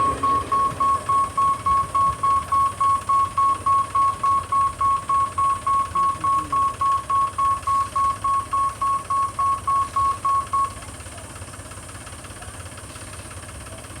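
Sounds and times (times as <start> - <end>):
electronic beeping: 0.0 - 10.8
low steady rumble: 0.0 - 10.8.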